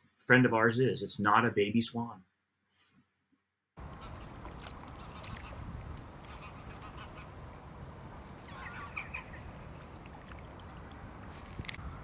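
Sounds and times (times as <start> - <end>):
waterfowl calling: 3.8 - 10.4.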